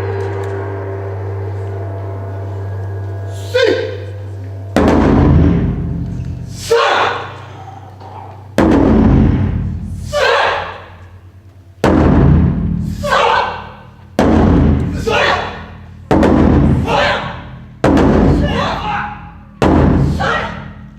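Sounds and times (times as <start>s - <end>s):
taiko drums: 0.0s - 20.9s
person shouting a call: 3.3s - 4.1s, 6.6s - 7.4s, 10.1s - 10.8s, 13.0s - 13.7s.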